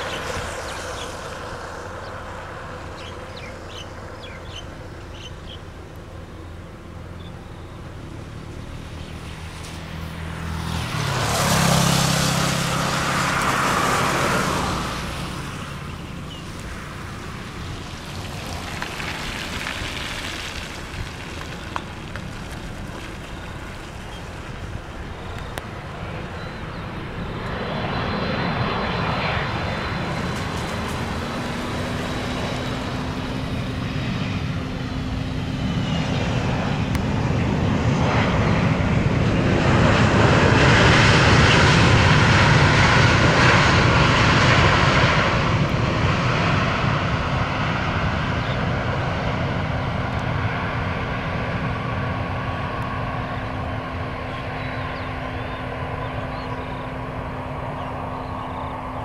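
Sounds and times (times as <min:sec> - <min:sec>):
jet plane passing by: 0:00.0 - 0:59.0
low engine hum: 0:00.0 - 0:59.0.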